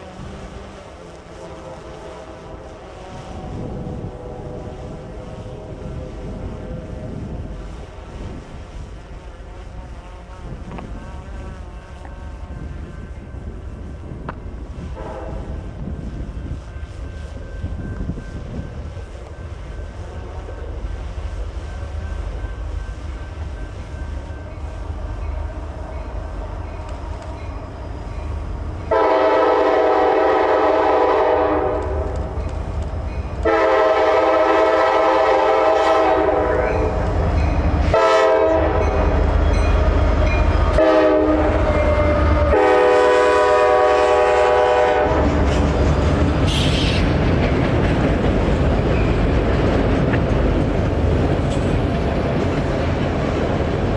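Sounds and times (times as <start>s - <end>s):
locomotive air horn blasts: 0.0s - 7.2s, 8.9s - 13.1s, 14.8s - 15.7s, 28.8s - 32.1s, 33.4s - 37.0s, 37.8s - 39.2s, 40.6s - 45.5s
freight train rumbling: 0.0s - 53.9s.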